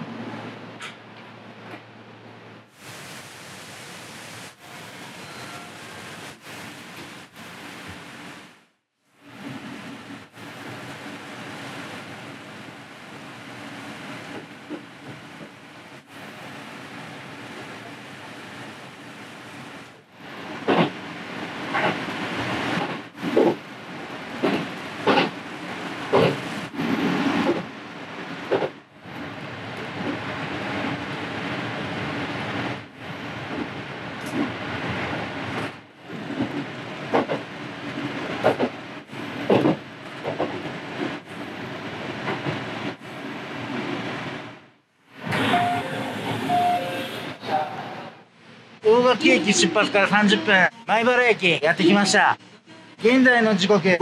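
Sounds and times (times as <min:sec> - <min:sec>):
electric train rumble: 0:00.0 - 0:52.3
knocks of train: 0:20.6 - 0:21.0, 0:24.4 - 0:25.4, 0:38.4 - 0:38.8, 0:39.4 - 0:40.6.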